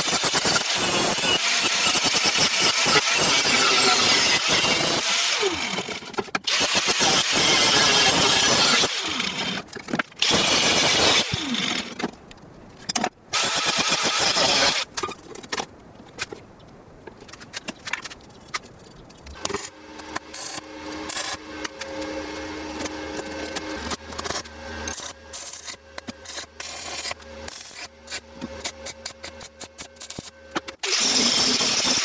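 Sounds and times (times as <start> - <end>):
power tool grinding: 0.0 - 12.0, 13.4 - 14.8, 19.4 - 29.5, 30.8 - 32.0.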